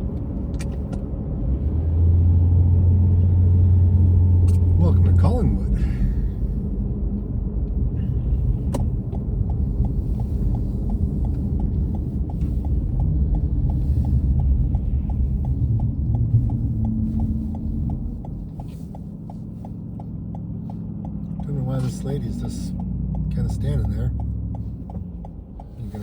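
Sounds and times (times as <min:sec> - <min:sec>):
road and engine rumble: 0:00.0 - 0:26.0
turn signal ticking: 0:00.0 - 0:26.0.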